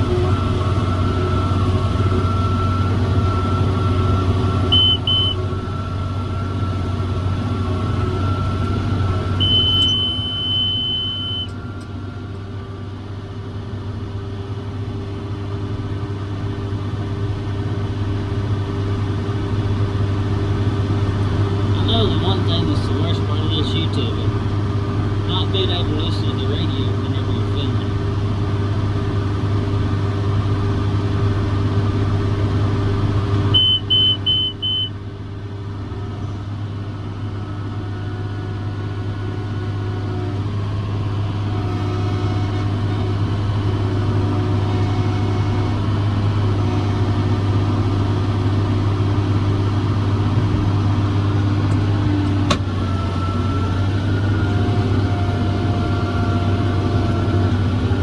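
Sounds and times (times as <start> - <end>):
diesel tractor engine under load: 0.0 - 58.0
high electronic beeps: 9.4 - 11.5.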